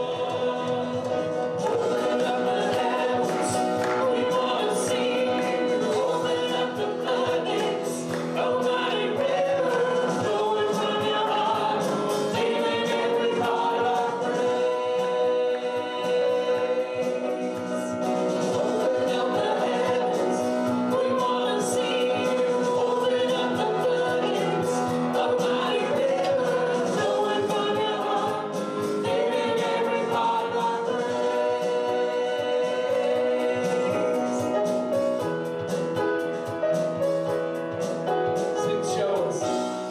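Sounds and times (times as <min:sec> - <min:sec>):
choir singing gospel song: 0:00.0 - 0:36.7, 0:37.4 - 0:39.9.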